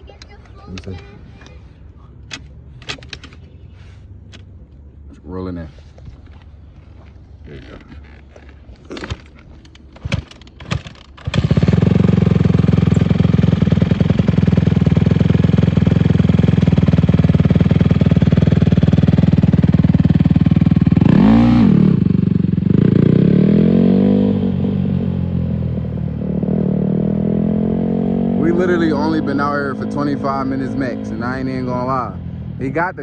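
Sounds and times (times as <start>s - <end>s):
dirt bike engine revving: 11.2s - 32.9s.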